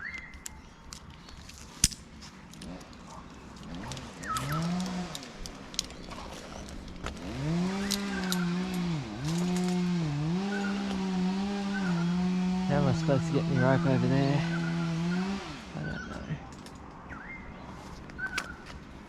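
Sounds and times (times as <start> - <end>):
chainsaw engine revving: 3.6 - 16.3.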